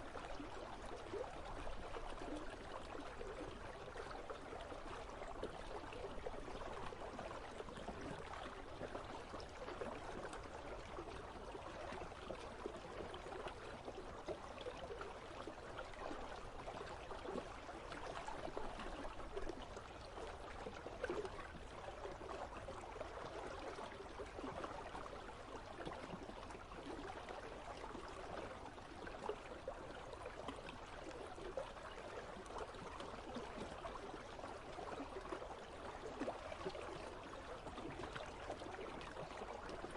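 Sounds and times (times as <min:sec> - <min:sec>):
small splashes and trickles: 0:00.0 - 0:39.9.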